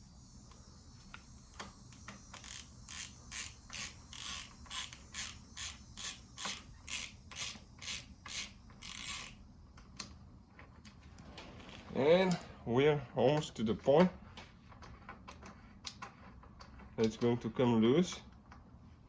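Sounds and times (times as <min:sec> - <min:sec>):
socket ratchet clicking: 0:01.5 - 0:10.1.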